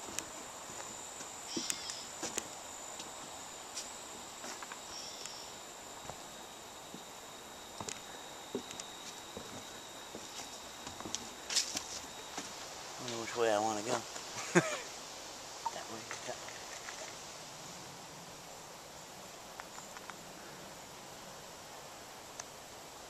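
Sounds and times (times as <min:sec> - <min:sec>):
footsteps on woodland trail: 0:00.0 - 0:05.4, 0:06.0 - 0:07.1, 0:07.8 - 0:14.7
insects trilling: 0:00.0 - 0:23.0.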